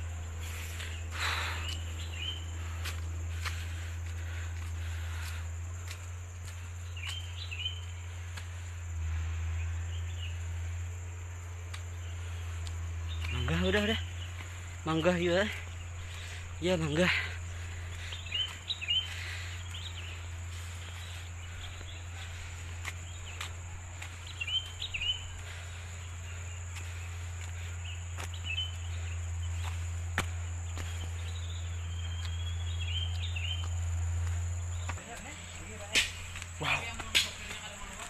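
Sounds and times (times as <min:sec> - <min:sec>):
birds chirping: 0:00.0 - 0:38.0
insect trilling: 0:09.7 - 0:38.0.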